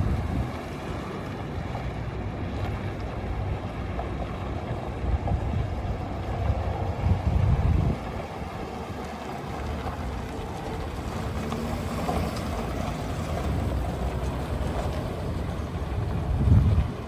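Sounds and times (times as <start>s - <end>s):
truck engine idling: 5.9s - 17.0s.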